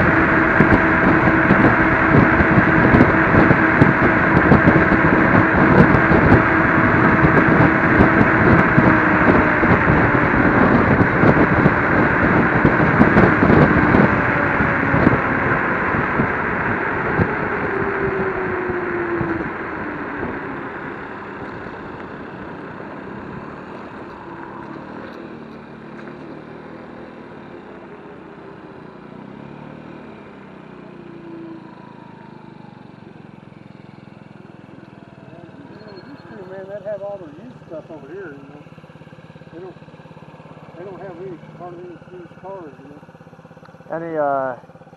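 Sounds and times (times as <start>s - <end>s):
wind buffeting microphone: 0.0s - 27.0s
electric motor whine: 0.0s - 44.7s.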